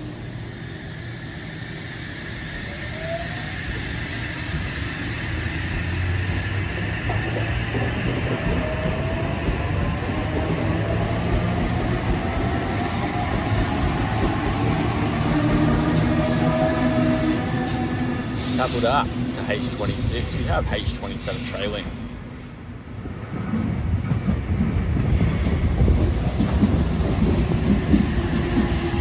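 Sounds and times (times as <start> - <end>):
electric train hum and whine: 0.0 - 29.0.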